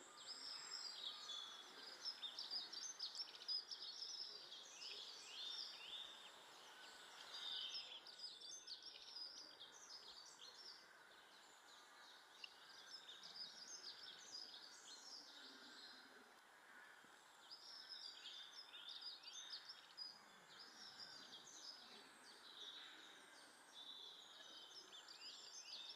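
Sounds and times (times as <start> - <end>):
songbirds twittering: 0.0 - 25.9.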